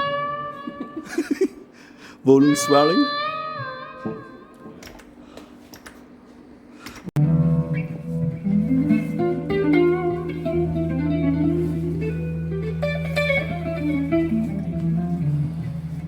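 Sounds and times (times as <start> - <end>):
electric guitar melody: 0.0 - 1.2, 2.4 - 4.8, 7.2 - 16.0.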